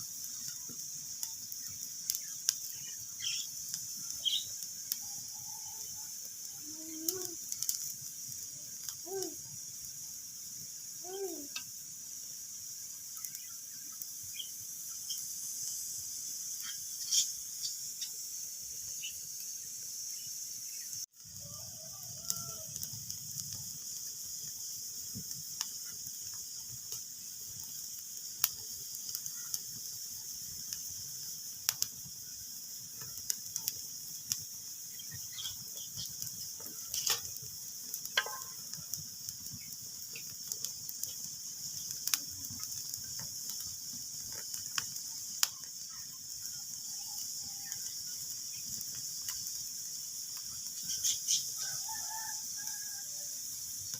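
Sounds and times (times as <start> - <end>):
fire pops and snaps: 0.0 - 5.1, 5.7 - 10.5, 21.3 - 52.9
wood fire crackling: 0.0 - 53.9.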